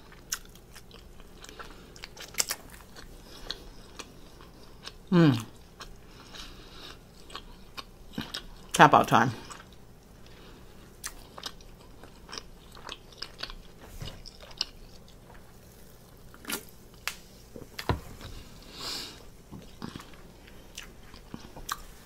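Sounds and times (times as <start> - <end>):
chewing with wet mouth clicks: 0.0 - 8.8, 11.0 - 17.9.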